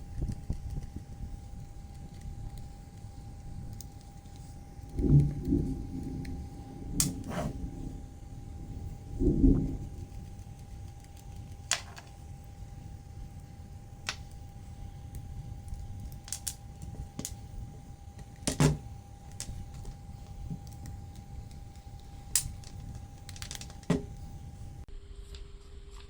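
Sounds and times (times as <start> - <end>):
faint steady hum: 0.0 - 26.0
small clicks and knocks of parts: 9.9 - 12.2, 14.0 - 17.4, 18.1 - 24.3.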